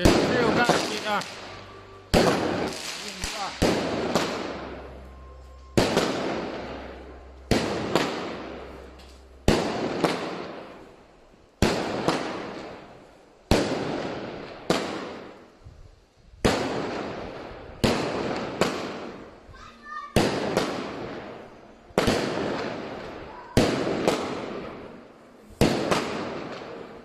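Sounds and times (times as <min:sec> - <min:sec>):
fireworks bangs: 0:00.0 - 0:15.6, 0:16.4 - 0:27.0.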